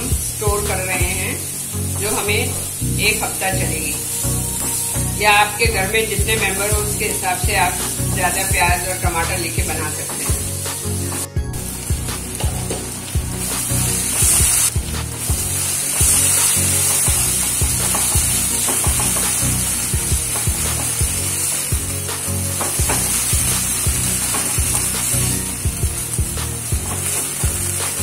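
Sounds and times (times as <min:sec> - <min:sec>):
vegetables sizzling in oil: 0:00.0 - 0:28.0
spatula scraping and tapping pan: 0:16.0 - 0:19.4, 0:20.2 - 0:21.0, 0:24.2 - 0:25.0.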